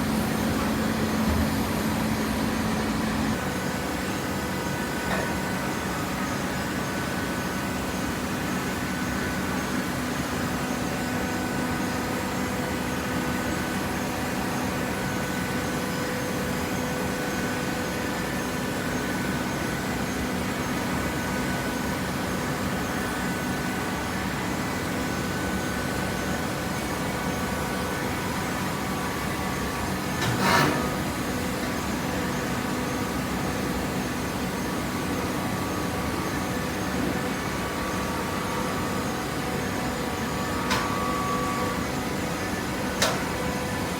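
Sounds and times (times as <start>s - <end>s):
baler machine hum: 0.0s - 6.2s.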